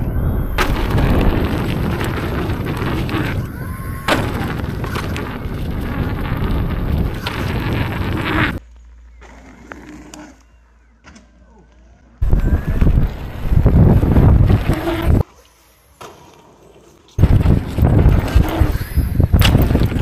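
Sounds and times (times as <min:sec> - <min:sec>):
wind buffeting microphone: 0:00.0 - 0:08.6, 0:12.2 - 0:15.2, 0:17.2 - 0:20.0
riding rumble: 0:00.0 - 0:10.6, 0:11.4 - 0:15.2, 0:17.2 - 0:20.0.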